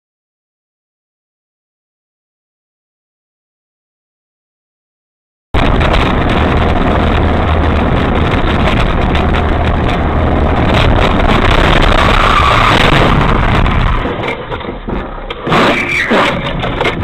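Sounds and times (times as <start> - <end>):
vehicle engine and road noise: 5.6 - 17.0.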